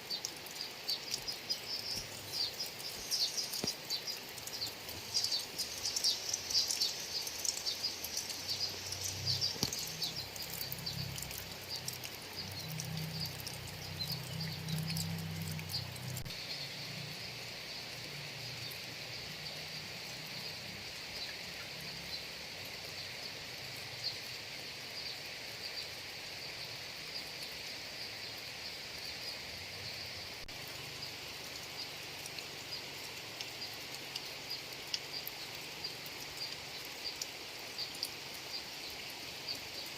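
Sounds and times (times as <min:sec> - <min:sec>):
high insect chorus: 0:00.0 - 0:39.9
rain falling: 0:00.0 - 0:39.9
drop ticks: 0:06.0 - 0:16.3.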